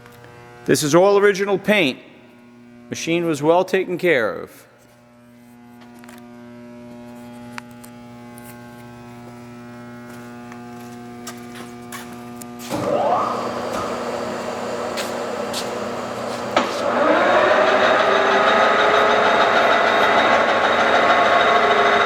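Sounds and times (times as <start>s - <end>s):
lathe spindle whir: 12.7s - 22.0s
motor humming: 12.7s - 22.0s.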